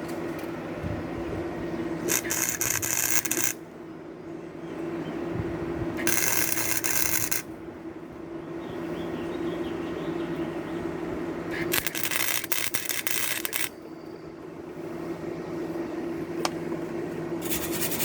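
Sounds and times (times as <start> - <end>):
steady low hum: 0.0 - 18.0
welder arc bursts: 2.0 - 3.6, 6.0 - 7.5, 11.5 - 13.8.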